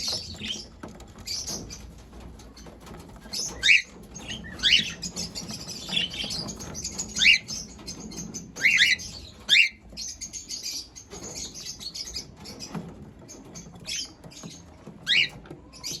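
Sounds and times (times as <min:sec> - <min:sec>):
cockatiel chirping: 0:03.3 - 0:10.8, 0:15.0 - 0:16.0.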